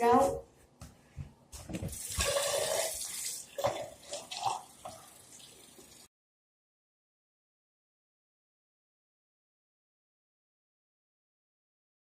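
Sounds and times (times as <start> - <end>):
tap water splashing on hair: 1.7 - 6.0.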